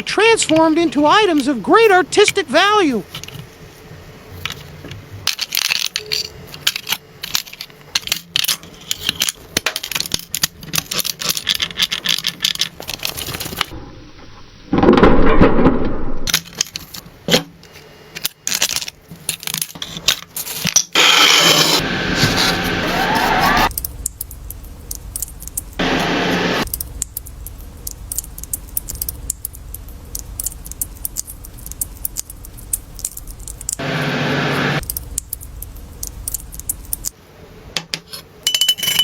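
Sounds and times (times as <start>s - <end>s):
small metal parts clinking: 5.2s - 13.6s, 38.4s - 39.0s
rough noise burst: 25.8s - 26.8s.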